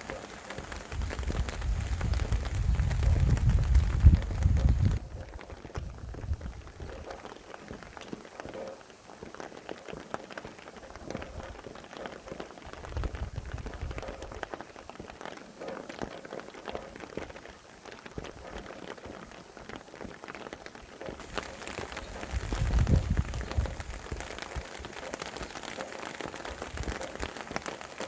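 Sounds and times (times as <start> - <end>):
rain drops ticking on a surface: 0.0 - 28.0
low wind rumble: 0.6 - 7.1, 12.7 - 14.5, 21.2 - 24.9.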